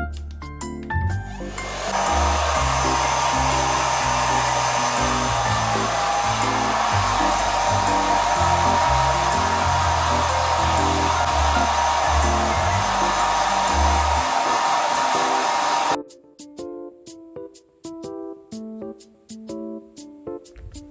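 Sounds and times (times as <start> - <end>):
hair dryer running: 1.3 - 16.0.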